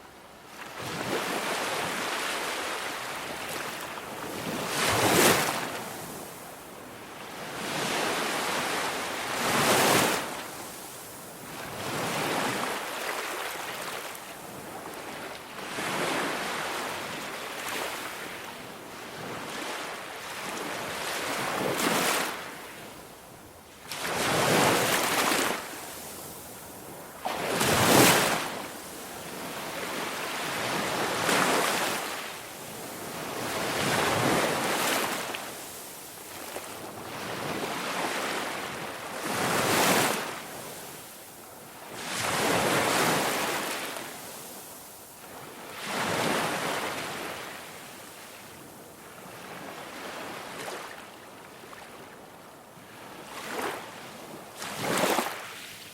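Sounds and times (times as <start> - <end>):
waves breaking and washing in: 0.0 - 55.9.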